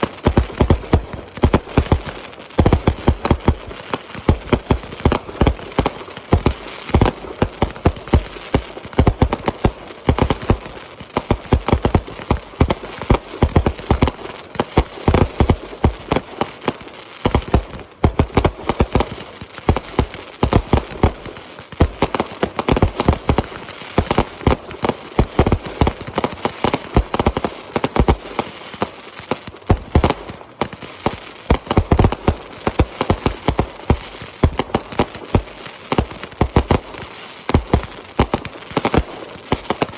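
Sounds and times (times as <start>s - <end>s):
fireworks popping and banging: 0.0s - 39.9s.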